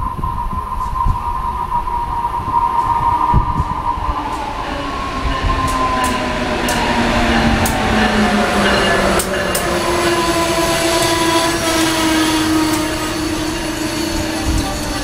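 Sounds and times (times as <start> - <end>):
electric train whine: 0.0 - 15.0
train rumble: 0.0 - 15.0
sharp clicks of passing locomotive: 0.5 - 15.0.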